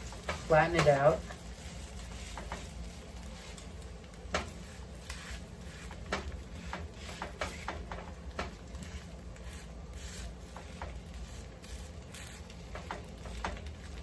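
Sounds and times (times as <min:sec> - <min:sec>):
spatula tapping in frying pan: 0:00.1 - 0:01.0, 0:04.3 - 0:04.6, 0:06.0 - 0:08.6, 0:12.7 - 0:13.7.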